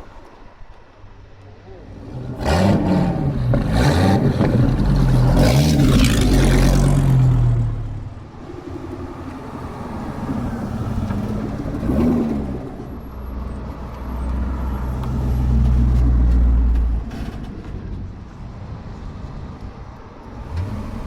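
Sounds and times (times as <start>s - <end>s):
car engine revving: 1.8s - 13.0s, 20.3s - 21.0s.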